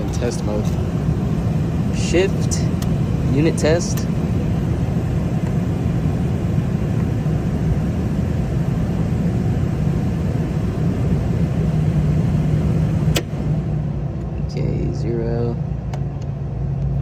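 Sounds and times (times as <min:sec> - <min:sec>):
low machinery rumble: 0:00.0 - 0:17.0
sharp click: 0:13.1 - 0:13.4.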